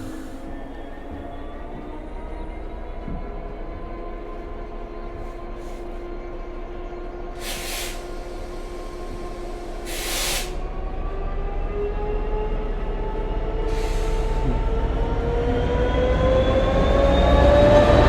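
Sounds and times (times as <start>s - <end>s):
diesel train engine running: 0.0s - 18.0s
short bursts of hissing: 7.4s - 10.6s.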